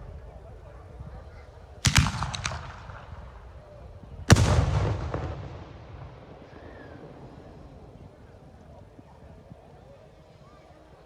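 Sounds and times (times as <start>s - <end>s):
rockets cracking: 1.8s - 7.7s
heavy echoing bang: 1.9s - 3.4s, 4.3s - 7.2s.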